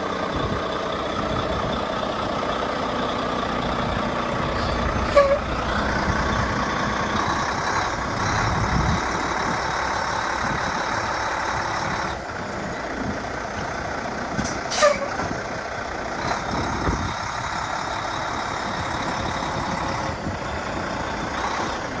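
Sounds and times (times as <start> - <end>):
diesel truck engine idling: 0.0 - 22.0
short falling squeal: 4.6 - 5.5.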